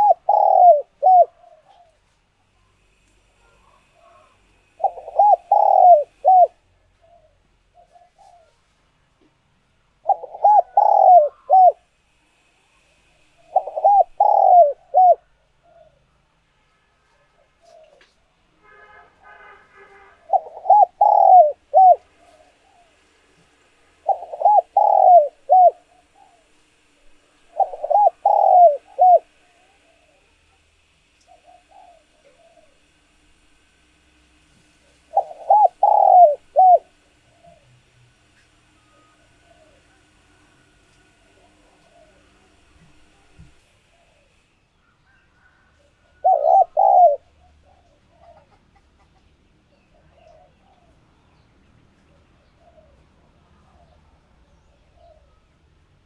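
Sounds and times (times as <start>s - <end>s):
dove cooing: 0.0s - 2.1s, 2.9s - 8.7s, 10.0s - 12.4s, 13.4s - 16.1s, 17.6s - 18.2s, 20.2s - 23.1s, 23.9s - 26.8s, 27.4s - 30.6s, 31.3s - 33.8s, 34.9s - 40.2s, 41.1s - 44.4s, 45.1s - 49.2s, 49.8s - 51.0s, 52.1s - 55.4s.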